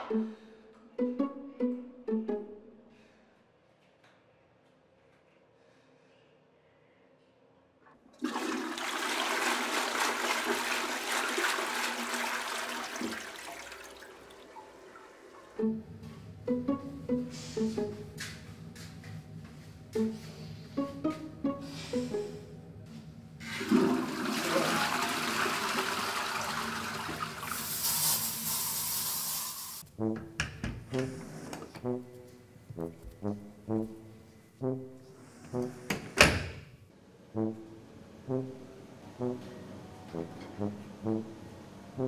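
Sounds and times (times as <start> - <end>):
toilet flushing: 8.2 - 15.8, 23.4 - 29.8
aerosol spray hissing: 27.6 - 29.8.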